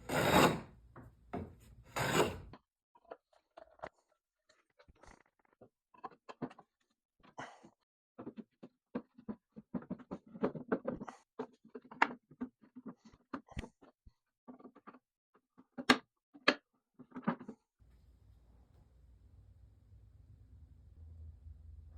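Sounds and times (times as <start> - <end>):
hand tools tapping and knocking wood: 0.9 - 2.2.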